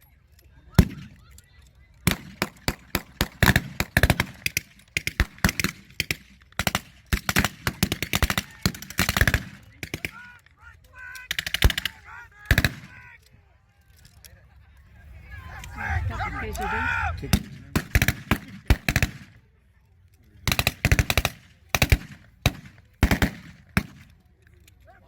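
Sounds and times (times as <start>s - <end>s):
blank gunshots: 2.0s - 10.2s, 11.3s - 12.9s, 17.3s - 19.3s, 20.4s - 24.1s
people shouting: 15.3s - 17.3s.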